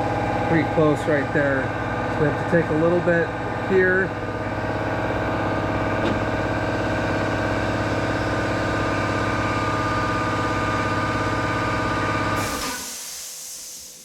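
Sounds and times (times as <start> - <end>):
air compressor pulsing hum: 0.0 - 14.0
hiss of released air: 12.4 - 14.0.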